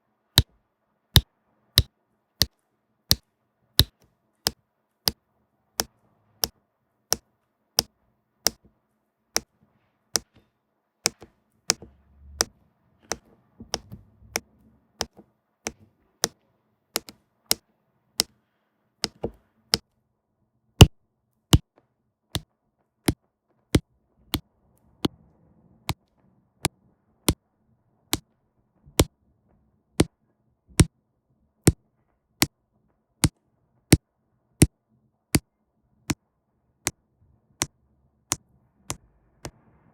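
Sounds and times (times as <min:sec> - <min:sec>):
pen tapping rhinestones onto canvas: 0:03.8 - 0:04.6, 0:07.8 - 0:08.7, 0:10.2 - 0:12.5, 0:17.0 - 0:17.6, 0:19.0 - 0:19.8.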